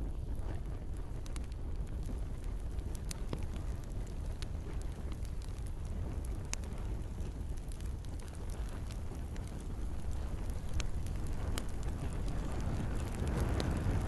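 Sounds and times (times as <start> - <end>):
campfire crackling: 0.0 - 14.0
low rumble: 0.0 - 14.0.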